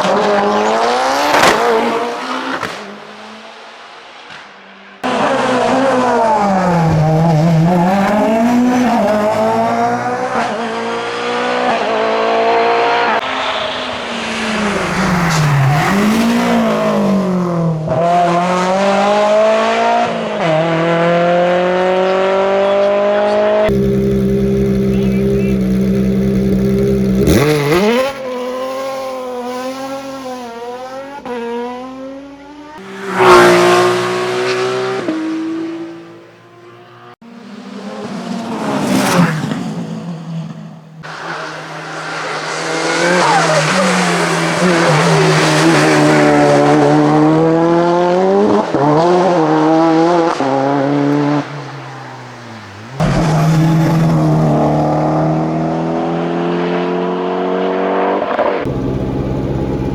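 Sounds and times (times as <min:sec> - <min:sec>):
racing car engines revving: 0:00.0 - 0:59.9
tyre squeal: 0:24.7 - 0:26.1, 0:51.8 - 0:54.8.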